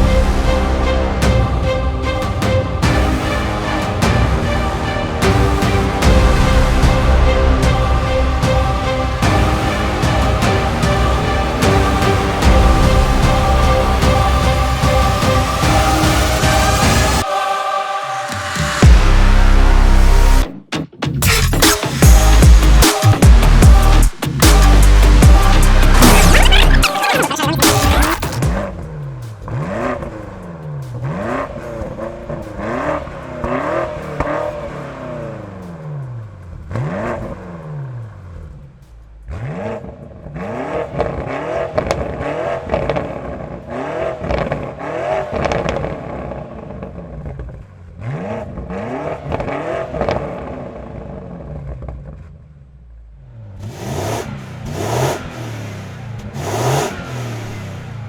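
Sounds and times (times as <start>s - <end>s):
car engine revving in blips: 18.3s - 58.0s.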